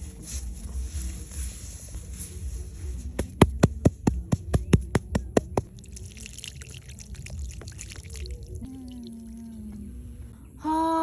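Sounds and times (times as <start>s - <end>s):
rapid sharp taps: 3.2s - 5.7s.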